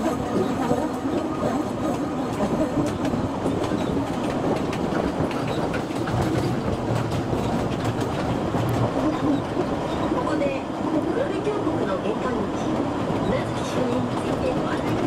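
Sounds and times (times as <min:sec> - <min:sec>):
train wheels clattering on track: 0:00.0 - 0:15.0.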